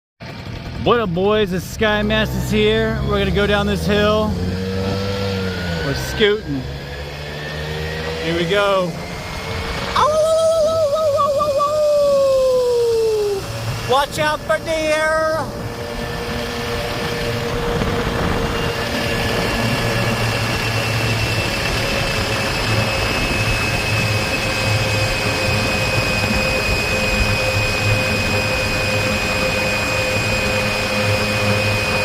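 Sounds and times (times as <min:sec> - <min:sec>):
scooter motor running: 0:00.2 - 0:32.0
wind rumble on microphone: 0:09.0 - 0:32.0.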